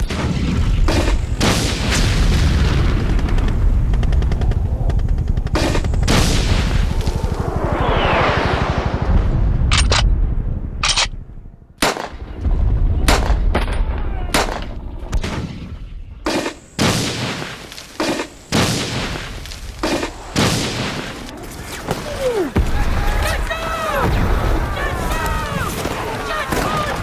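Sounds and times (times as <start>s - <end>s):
gunshots and bursts: 0.0s - 7.6s, 8.5s - 27.0s
low rumble of booms: 0.0s - 17.6s.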